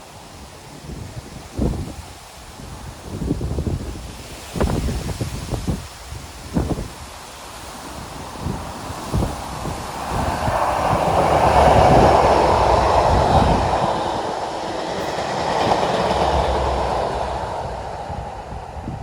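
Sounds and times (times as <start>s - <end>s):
freight train passing: 5.8s - 19.0s.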